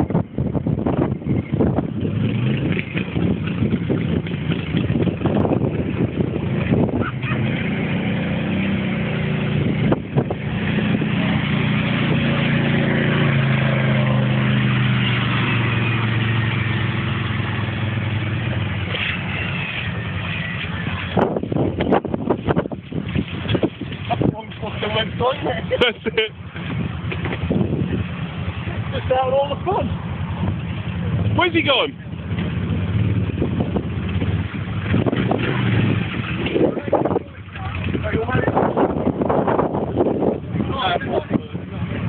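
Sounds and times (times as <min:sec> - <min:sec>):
quad engine running: 0:00.0 - 0:42.0
water washing noise: 0:00.0 - 0:42.0.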